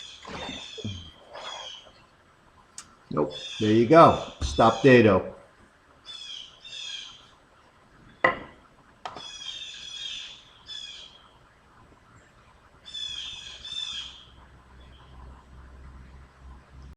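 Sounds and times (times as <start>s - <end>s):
bird chirping and squawking: 0.0s - 2.0s, 3.3s - 5.0s, 6.0s - 7.3s, 9.2s - 11.3s, 12.8s - 15.1s
sharp knock: 4.4s - 4.8s.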